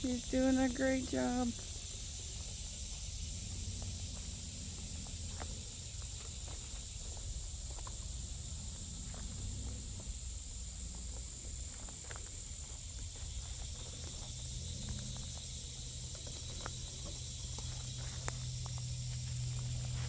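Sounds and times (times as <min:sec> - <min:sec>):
high-pitched insect chirring: 0:09.4 - 0:20.0.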